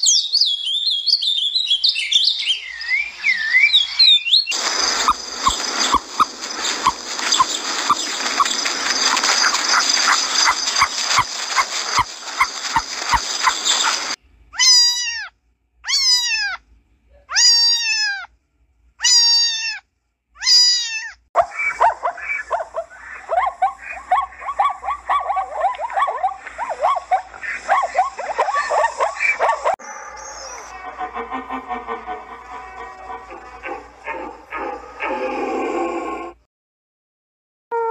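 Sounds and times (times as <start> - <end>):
zebras yelping barks: 4.5 - 14.8, 21.4 - 31.2, 32.3 - 35.6
cat meowing: 14.6 - 16.6, 17.3 - 18.3, 19.0 - 19.8, 20.4 - 21.2.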